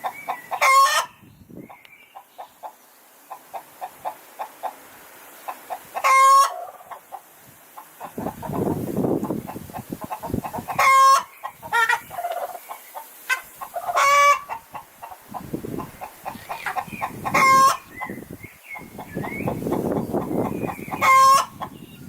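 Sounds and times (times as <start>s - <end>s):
chicken clucking: 0.0s - 4.8s, 5.4s - 22.0s
chicken squawking: 0.3s - 1.2s, 5.7s - 7.0s, 8.0s - 12.7s, 13.3s - 21.8s.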